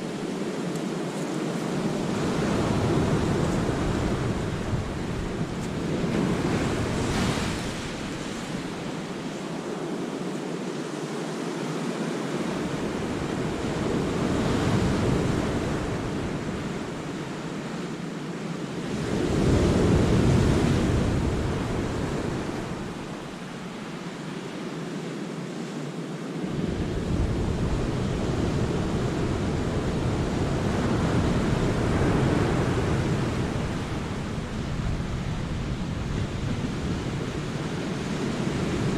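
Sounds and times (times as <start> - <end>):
wind rumble on microphone: 0.0 - 38.9
sea waves breaking on rocks: 0.2 - 9.4.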